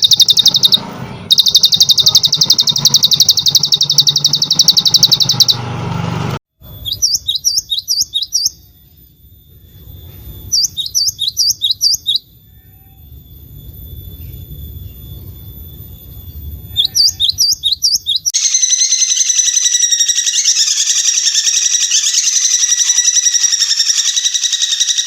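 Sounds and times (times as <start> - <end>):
steady high-pitched tone: 0.0 - 5.7
buzzy bird trill: 0.0 - 5.8, 6.6 - 25.0.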